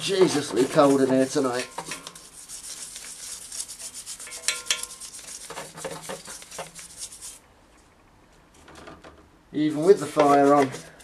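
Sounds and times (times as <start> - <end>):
scrubbing on hard surface: 0.0 - 7.4, 9.8 - 11.0.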